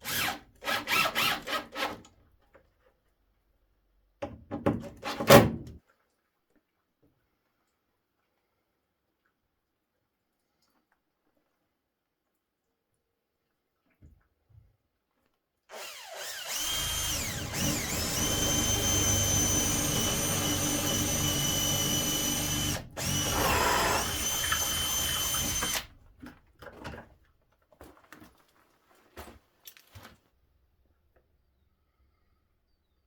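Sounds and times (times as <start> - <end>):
power drill whining: 0.0 - 2.0, 15.7 - 26.1.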